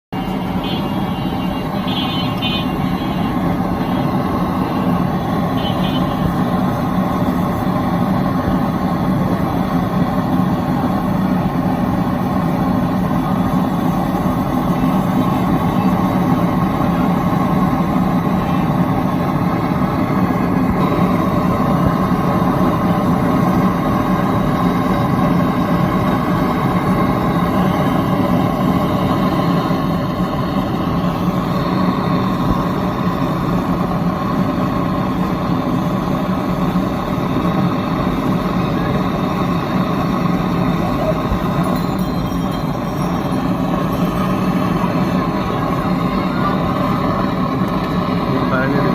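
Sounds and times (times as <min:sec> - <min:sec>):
motor droning steadily: 0:00.2 - 0:48.9.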